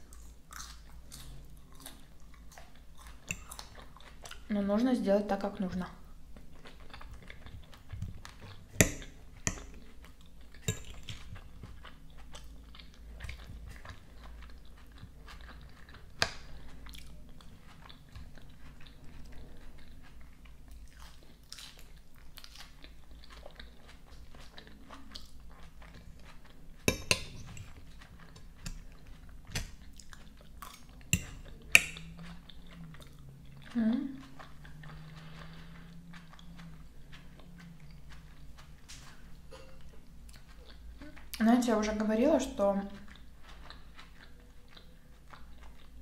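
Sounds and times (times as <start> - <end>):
chewing salad with light crunching: 0.0 - 46.0
metal fork clicking on plate: 10.7 - 11.1, 31.2 - 32.0.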